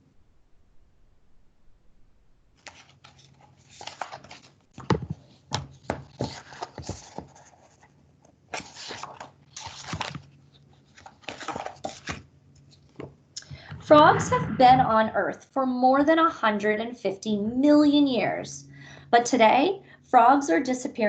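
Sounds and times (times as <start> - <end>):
book handling rustling: 2.6 - 13.1
faint low hum: 13.4 - 21.0.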